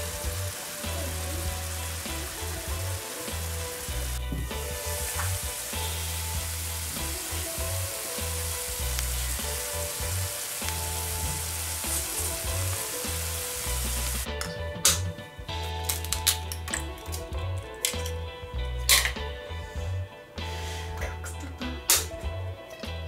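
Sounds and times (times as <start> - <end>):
apples sizzling in syrup: 0.0 - 14.3
music with pulsing bass: 0.0 - 23.0.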